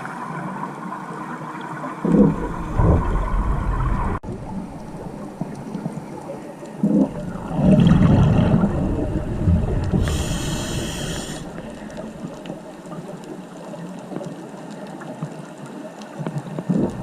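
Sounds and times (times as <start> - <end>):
bubbles rumbling underwater: 1.9 - 13.4, 16.4 - 17.0
hissing breath through regulator: 9.9 - 12.2.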